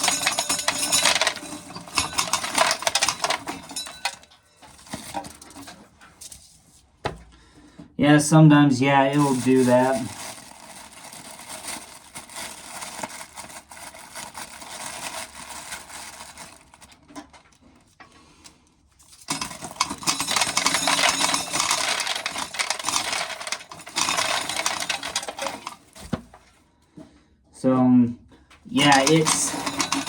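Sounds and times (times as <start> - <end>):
corn kernels rattling in a sheller: 0.0 - 5.9, 8.7 - 17.4, 19.0 - 26.5, 28.7 - 30.0.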